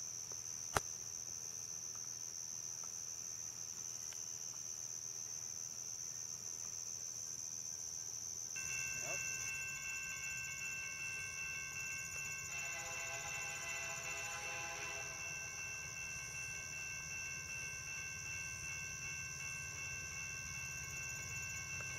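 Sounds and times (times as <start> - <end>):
crickets chirping: 0.0 - 21.9
distant train horn tones: 12.5 - 15.6.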